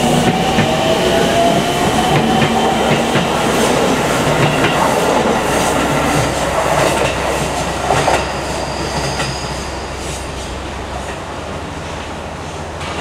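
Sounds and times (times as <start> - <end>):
electric train passing: 0.0 - 13.0
train wheels clacking over rail joints: 2.1 - 9.5
high wheel squeal: 7.5 - 10.6.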